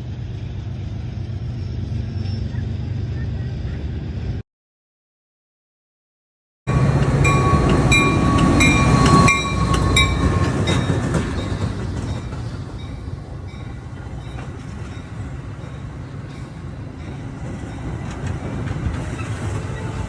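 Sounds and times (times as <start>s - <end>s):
train rumbling past: 0.0s - 4.4s, 6.7s - 20.0s
wheels clacking over rail joints: 6.7s - 20.0s.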